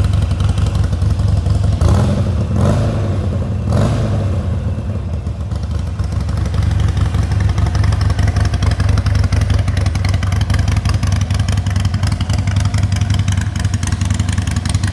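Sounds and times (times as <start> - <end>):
motorcycle engine running: 0.0 - 14.9.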